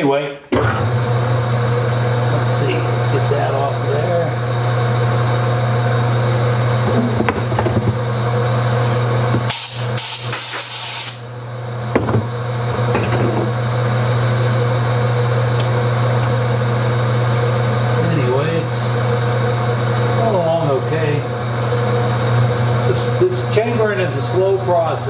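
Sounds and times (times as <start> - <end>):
shop machine humming: 0.5 - 25.0
loud hiss: 9.5 - 11.3.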